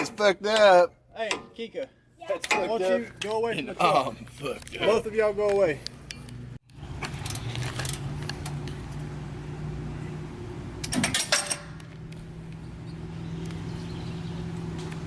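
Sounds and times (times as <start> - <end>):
metal tools clinking: 11.0 - 11.8.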